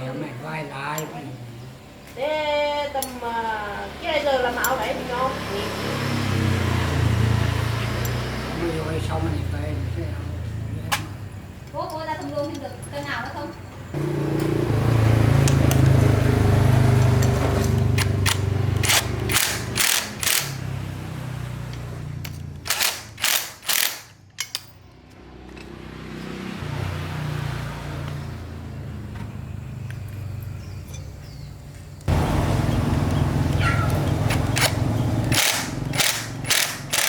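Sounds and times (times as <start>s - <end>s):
small engine humming: 13.9s - 24.0s, 27.0s - 37.0s
sharp cracks: 18.0s - 20.7s, 22.6s - 24.2s, 33.5s - 37.0s.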